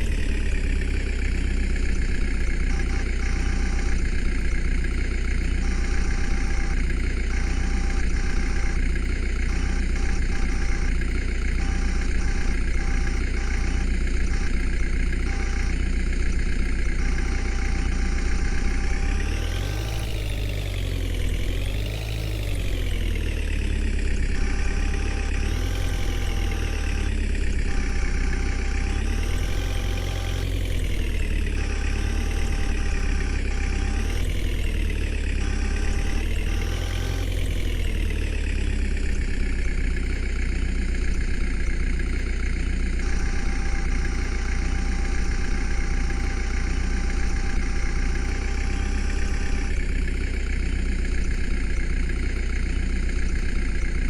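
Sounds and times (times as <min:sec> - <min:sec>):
tractor diesel engine revving: 0:00.0 - 0:54.0
faint steady whine: 0:22.4 - 0:54.0.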